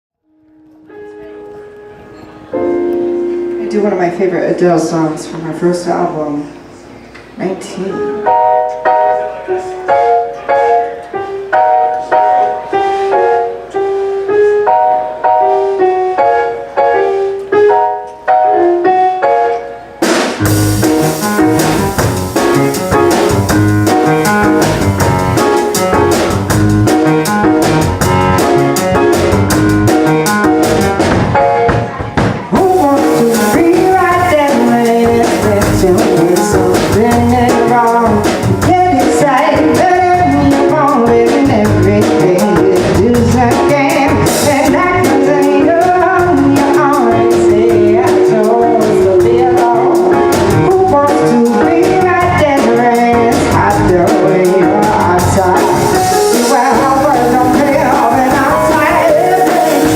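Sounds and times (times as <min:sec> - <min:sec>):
keyboard chords: 0:00.2 - 0:59.9
live band playing: 0:00.9 - 0:59.9
drums: 0:19.9 - 0:59.9
bass guitar: 0:20.0 - 0:59.9.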